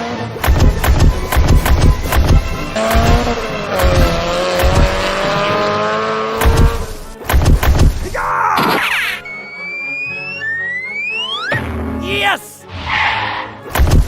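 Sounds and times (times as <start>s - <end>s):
background music with steady beat: 0.0s - 5.3s
racing car engine whine: 0.0s - 7.2s.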